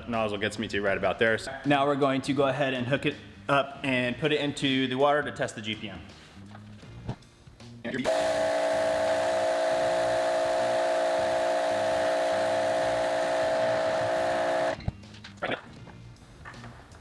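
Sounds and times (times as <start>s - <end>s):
pressure washer motor humming: 8.1s - 14.8s
water spraying into bucket: 8.1s - 14.8s.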